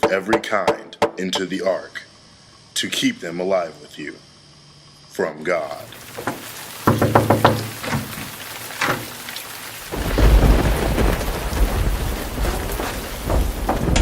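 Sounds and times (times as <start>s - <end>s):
heavy rain: 5.6s - 14.0s
thunder cracks: 6.0s - 14.0s
rumble of thunder: 9.9s - 14.0s.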